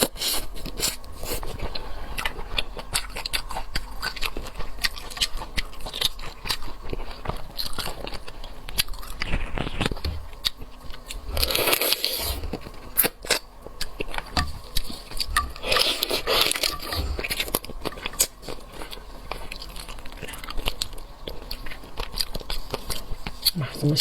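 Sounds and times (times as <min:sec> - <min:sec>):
crunching seafood: 0:00.0 - 0:24.0.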